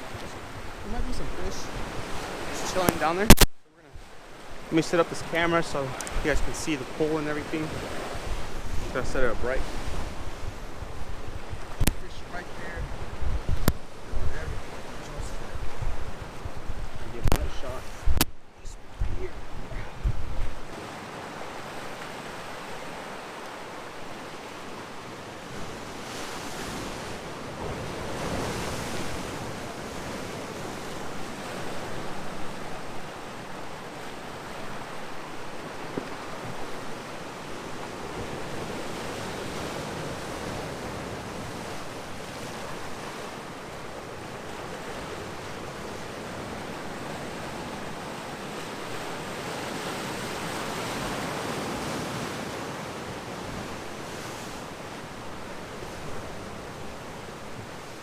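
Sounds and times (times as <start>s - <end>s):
ocean surf breaking on rocks: 0.0s - 58.0s.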